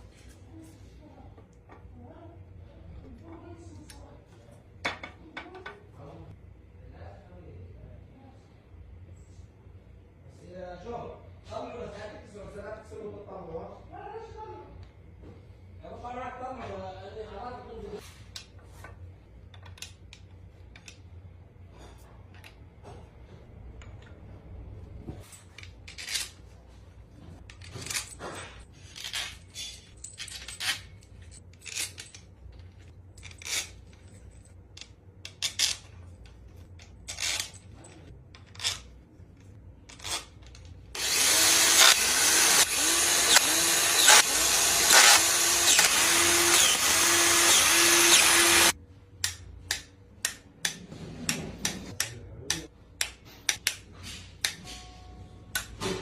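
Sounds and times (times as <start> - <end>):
tools clicking and knocking: 18.3 - 21.1, 27.4 - 54.9, 55.5 - 56.0
power tool running: 41.0 - 48.8.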